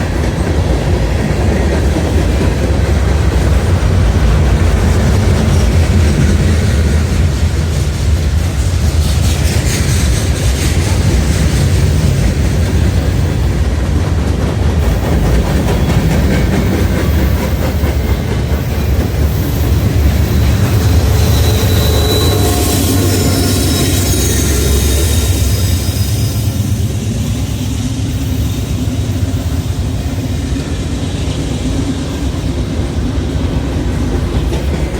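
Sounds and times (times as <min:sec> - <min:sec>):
freight train rumbling past: 0:00.0 - 0:34.9
train wheel clatter: 0:00.0 - 0:34.9
train wheel squeals: 0:14.7 - 0:34.9.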